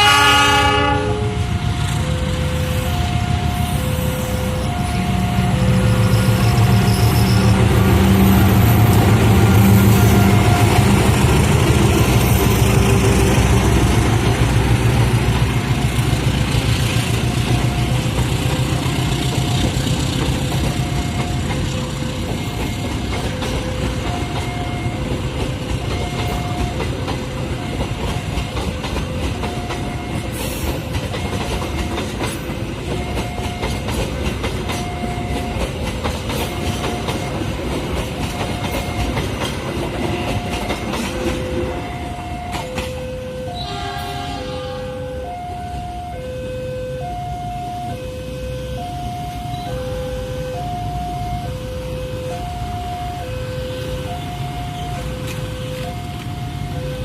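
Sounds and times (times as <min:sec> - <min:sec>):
train rumble: 0:00.0 - 0:57.0
wheels clacking over rail joints: 0:06.0 - 0:43.2.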